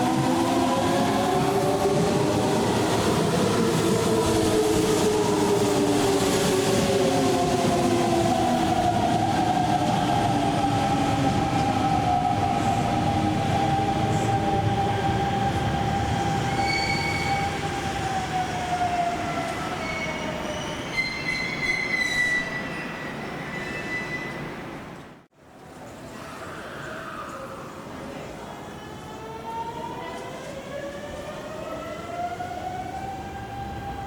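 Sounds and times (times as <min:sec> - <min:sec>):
high-pitched brake squeals: 0:16.6 - 0:17.5, 0:19.8 - 0:24.6.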